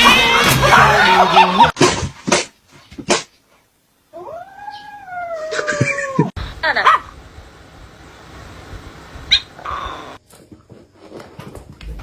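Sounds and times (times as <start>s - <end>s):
pet animal crying: 4.2s - 6.3s.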